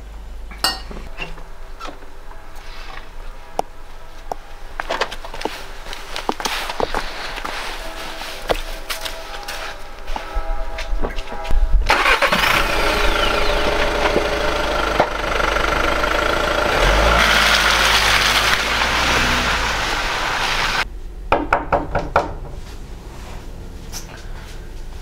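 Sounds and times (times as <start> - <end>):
car engine starting and running: 11.9 - 20.8.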